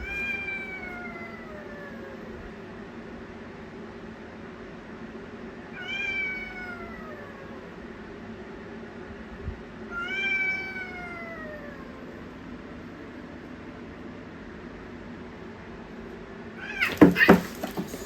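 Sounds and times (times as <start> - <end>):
cat meowing: 0.0 - 2.2, 5.8 - 7.6, 9.9 - 12.0, 16.6 - 18.0.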